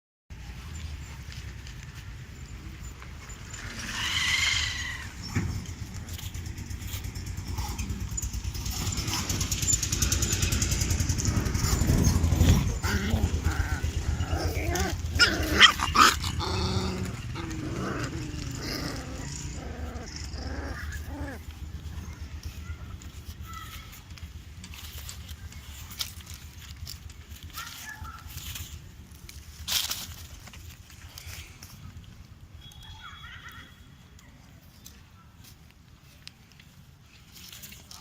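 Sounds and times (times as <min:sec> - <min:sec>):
puppies growling: 0:02.4 - 0:23.4
puppy barks: 0:11.6 - 0:21.5.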